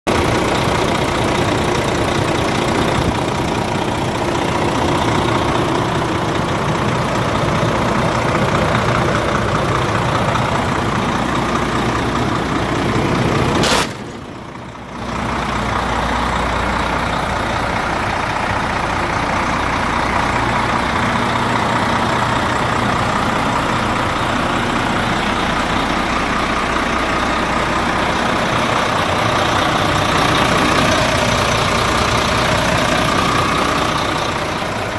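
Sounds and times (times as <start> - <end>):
diesel truck engine idling: 0.1 - 34.9
short sharp sound: 13.6 - 14.3.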